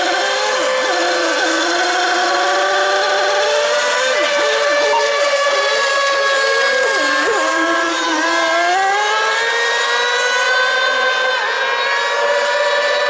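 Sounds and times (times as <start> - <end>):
boat engine rising in pitch: 0.0 - 13.0
model boat engines at high revs: 0.0 - 13.0.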